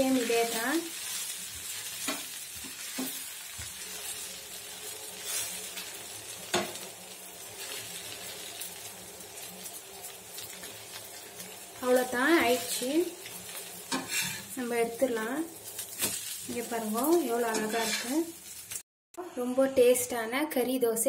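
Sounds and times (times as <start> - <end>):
food sizzling on a hot pan: 0.0 - 18.9
spatula scraping and tapping pan: 1.1 - 4.1, 6.5 - 6.9, 13.9 - 14.6, 17.5 - 18.6.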